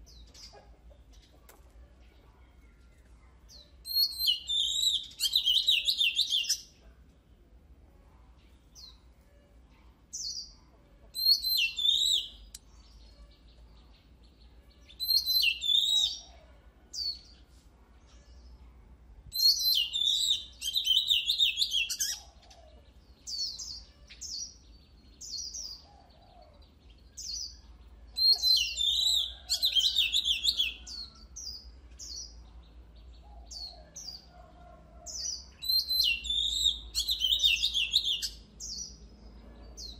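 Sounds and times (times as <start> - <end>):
bird singing whistled notes: 3.8 - 6.7, 11.2 - 13.3, 14.8 - 16.3, 19.3 - 22.3, 27.0 - 31.2, 35.6 - 39.0.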